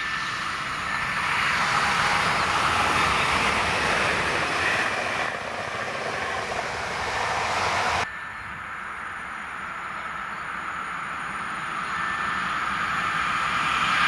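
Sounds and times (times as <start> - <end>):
electric train passing at speed: 0.0 - 14.0.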